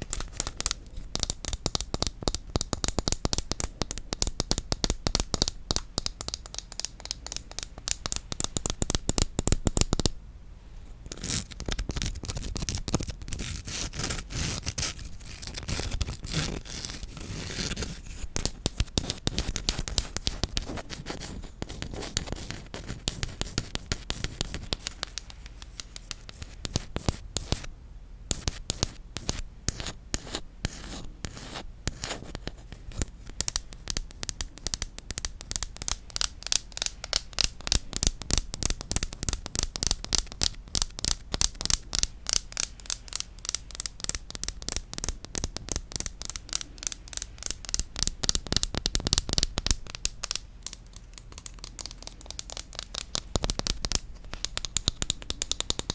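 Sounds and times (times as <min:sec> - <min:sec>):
rapid tapping on wood: 0:00.6 - 0:10.1, 0:33.3 - 0:55.9.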